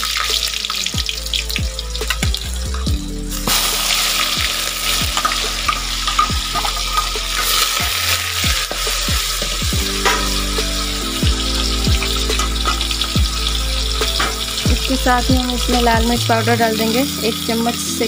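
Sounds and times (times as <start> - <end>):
onion paste sizzling in oil: 0.0 - 18.0
metal spatula scraping a pan: 3.4 - 11.0.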